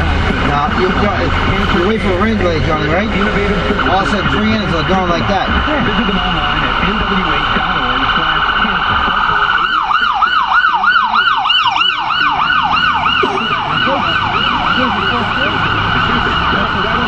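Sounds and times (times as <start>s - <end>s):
electronic siren yelping: 3.6s - 17.0s.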